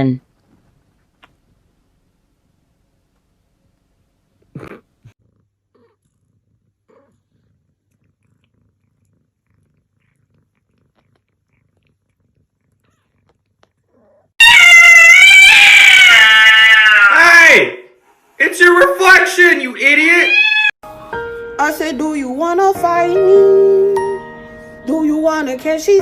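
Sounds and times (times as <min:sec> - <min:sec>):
cat yowling: 0:13.9 - 0:17.7, 0:19.8 - 0:20.8.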